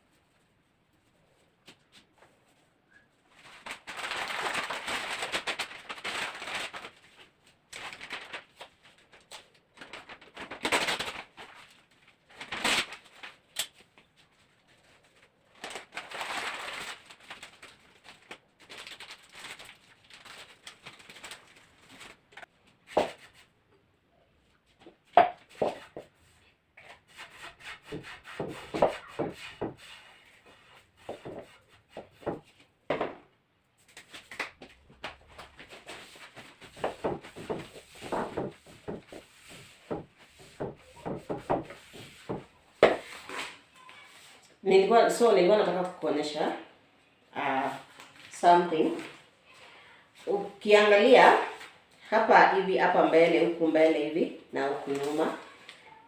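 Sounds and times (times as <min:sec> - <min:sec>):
newspaper rustling and crinkling: 0:03.3 - 0:23.5, 0:33.8 - 0:44.4, 0:47.7 - 0:49.6, 0:50.2 - 0:52.0, 0:54.8 - 0:55.8.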